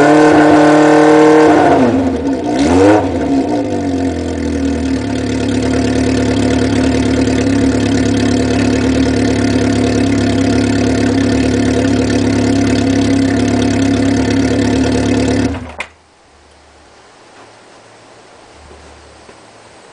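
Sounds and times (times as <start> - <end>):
motorcycle engine idling: 3.4 - 15.8
engine stopping click: 13.5 - 16.0.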